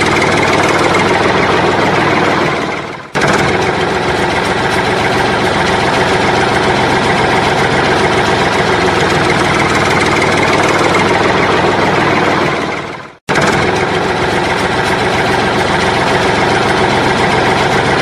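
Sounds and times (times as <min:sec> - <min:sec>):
diesel machine idling: 0:00.0 - 0:18.0.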